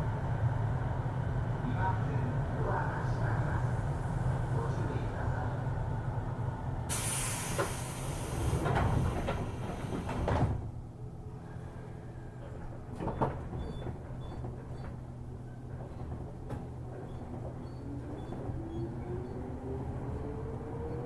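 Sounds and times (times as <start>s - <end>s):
train equipment hum: 0.0s - 21.0s
train door air hiss: 6.9s - 10.3s.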